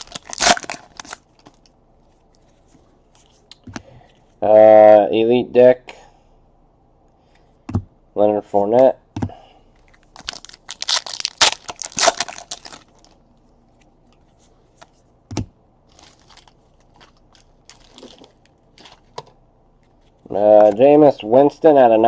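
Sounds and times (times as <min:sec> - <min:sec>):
foil wrapper crinkling: 0:00.0 - 0:01.7, 0:10.0 - 0:13.2, 0:15.9 - 0:19.2
cards rustling: 0:09.8 - 0:15.0, 0:15.9 - 0:19.2.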